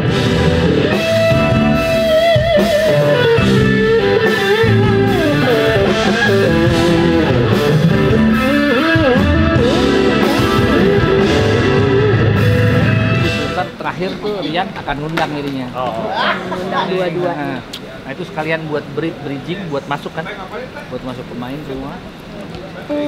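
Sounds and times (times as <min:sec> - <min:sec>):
electric guitar lead melody: 0:00.0 - 0:13.8
rock band playing: 0:00.0 - 0:13.8.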